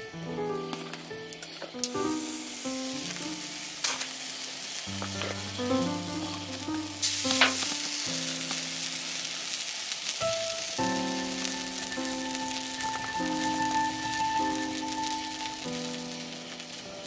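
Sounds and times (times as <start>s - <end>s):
campfire sizzling and crackling: 0.0s - 17.0s
music of held notes: 0.0s - 17.0s
fire pops: 6.2s - 8.7s.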